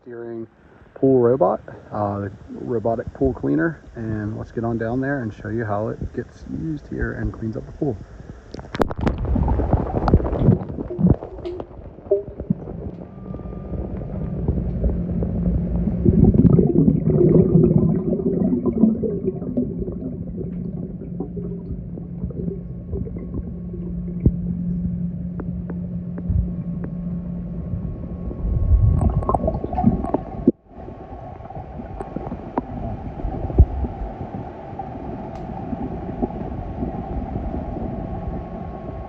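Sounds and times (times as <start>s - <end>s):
gurgling water: 0.1s - 39.0s
pool cleaner motor humming underwater: 8.2s - 39.0s.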